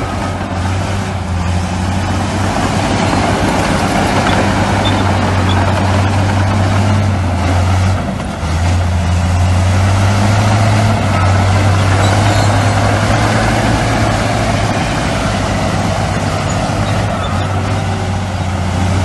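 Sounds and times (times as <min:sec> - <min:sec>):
heavy diesel machinery humming: 0:00.0 - 0:19.0.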